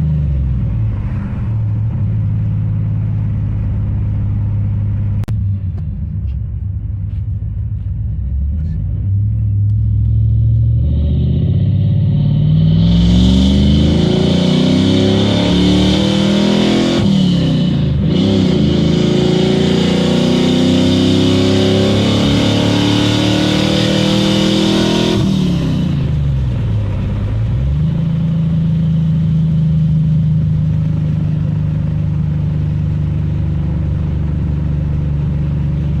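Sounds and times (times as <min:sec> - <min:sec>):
car engine revving: 0:00.0 - 0:36.0
engine lumpy idle: 0:01.8 - 0:10.3, 0:25.8 - 0:36.0.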